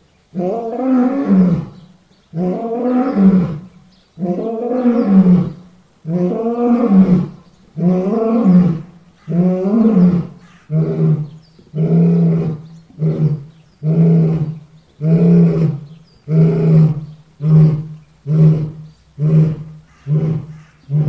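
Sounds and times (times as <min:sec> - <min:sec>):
lion roaring: 0:02.4 - 0:21.0.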